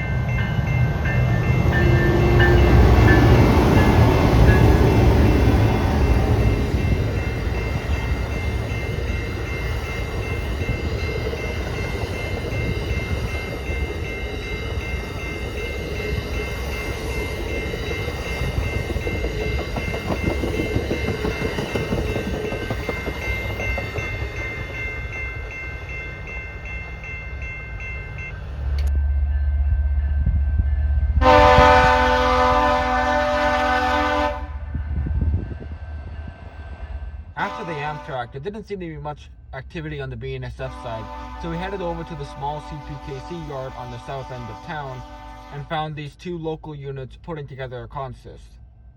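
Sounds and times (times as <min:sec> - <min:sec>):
crossing bell ringing: 0:00.0 - 0:34.7, 0:36.2 - 0:39.0, 0:39.6 - 0:46.6
passenger train rumbling: 0:00.0 - 0:48.9.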